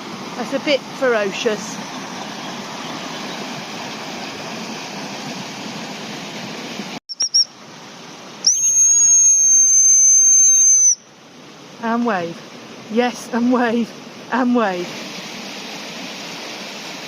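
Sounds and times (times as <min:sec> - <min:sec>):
river water rushing: 0:00.0 - 0:07.0, 0:10.9 - 0:17.0
dog whistle pips and blast: 0:07.1 - 0:07.5, 0:08.4 - 0:11.0.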